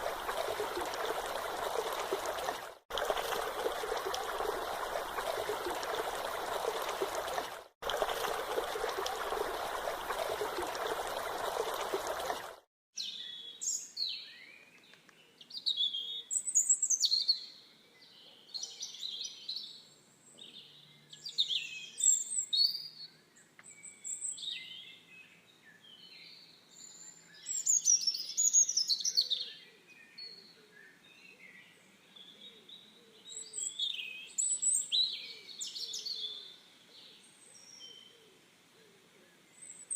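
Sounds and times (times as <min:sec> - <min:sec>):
birds chirping: 0:00.0 - 0:12.6
flowing water: 0:00.0 - 0:12.7.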